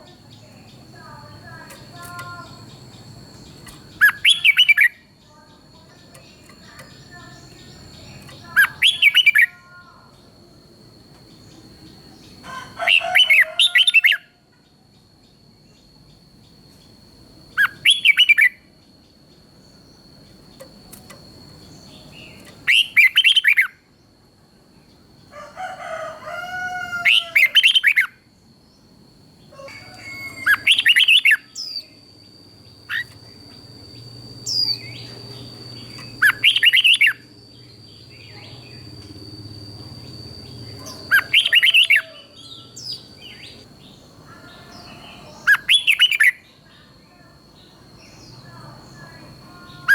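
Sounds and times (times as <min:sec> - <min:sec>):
high-pitched whine: 0:29.4 - 0:49.9
bulbul warbling song: 0:34.0 - 0:39.2, 0:39.9 - 0:43.6.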